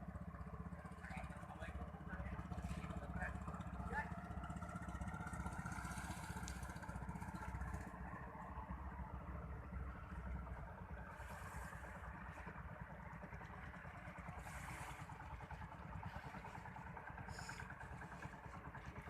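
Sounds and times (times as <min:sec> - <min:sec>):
small single-cylinder engine running: 0:00.0 - 0:19.0
hiss of wind or water: 0:11.0 - 0:12.4, 0:14.0 - 0:18.6.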